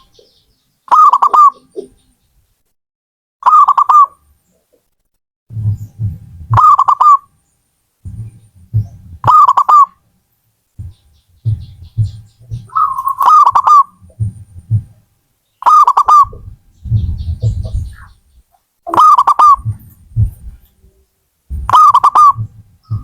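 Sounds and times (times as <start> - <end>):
dove cooing: 0.0 - 2.1, 5.5 - 7.3, 8.1 - 10.0, 10.8 - 15.0, 15.6 - 23.0
low thuds: 5.5 - 6.7, 8.0 - 9.5, 10.7 - 15.1, 16.1 - 23.0.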